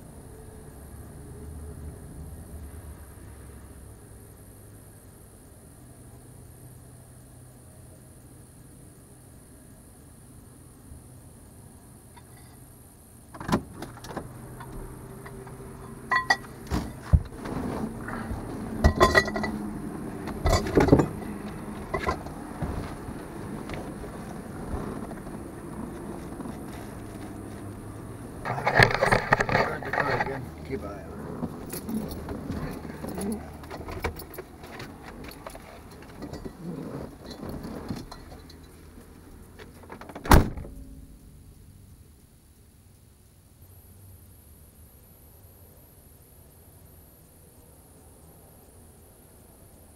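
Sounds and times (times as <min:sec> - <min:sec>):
low steady hum: 0:07.6 - 0:39.6, 0:40.4 - 0:49.9
sharp clinks and knocks: 0:12.2 - 0:12.7, 0:13.4 - 0:22.4, 0:31.6 - 0:38.9
car door shutting: 0:13.3 - 0:15.6, 0:16.2 - 0:19.6, 0:39.8 - 0:40.9
small clicks and rattles: 0:28.4 - 0:30.5.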